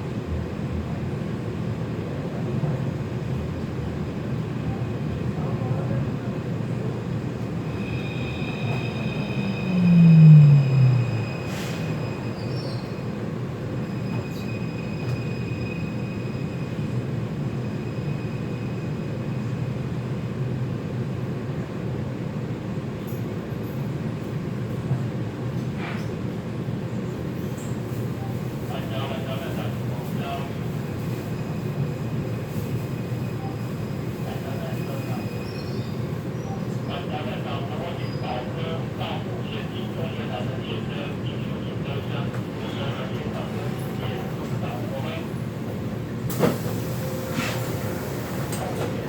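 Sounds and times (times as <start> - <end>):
metro train running rumble: 0.0 - 49.0
thin high whining tones: 7.8 - 12.5
loud tone falling in pitch: 9.3 - 11.5.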